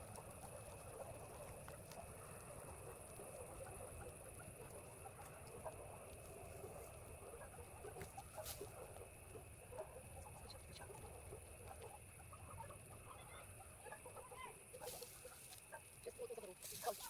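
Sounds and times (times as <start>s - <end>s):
soft chirps and clicks: 0.0s - 17.0s
steady high-pitched hiss: 0.0s - 17.0s.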